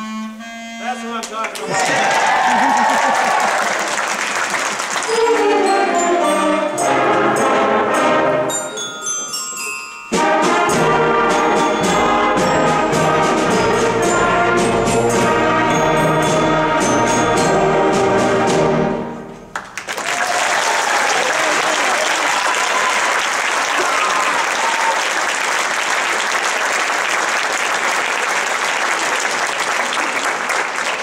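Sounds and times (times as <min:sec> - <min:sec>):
concert band playing: 0:04.9 - 0:19.4.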